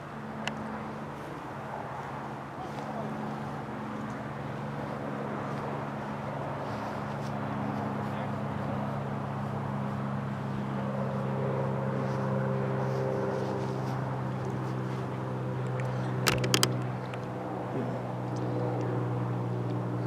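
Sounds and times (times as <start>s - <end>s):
sharp clicks: 16.3s - 17.2s.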